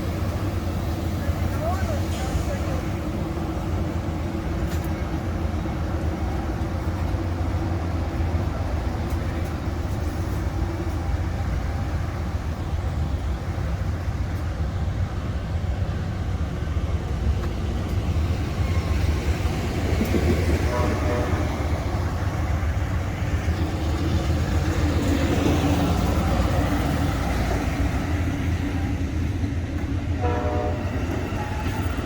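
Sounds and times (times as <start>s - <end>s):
passenger train rumbling: 0.0s - 32.0s.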